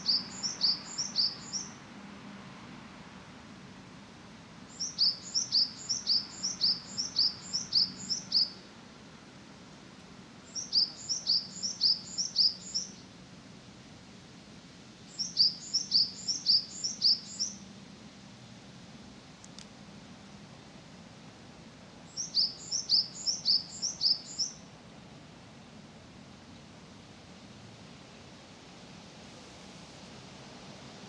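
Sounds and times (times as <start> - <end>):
small bird chirping: 0.0 - 1.8, 4.7 - 8.6, 10.5 - 13.0, 15.1 - 17.6, 22.1 - 24.6.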